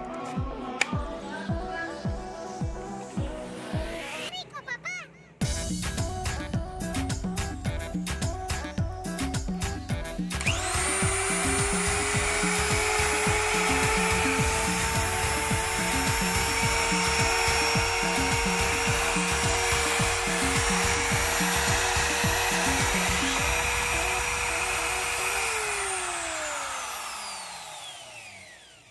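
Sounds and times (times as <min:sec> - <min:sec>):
trim router motor whining: 0:10.2 - 0:28.9.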